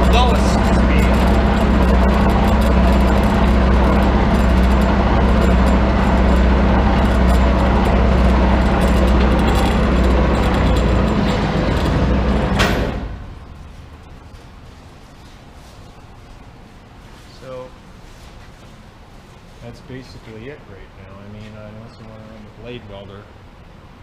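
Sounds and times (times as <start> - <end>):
band saw running with hum: 0.0 - 13.4.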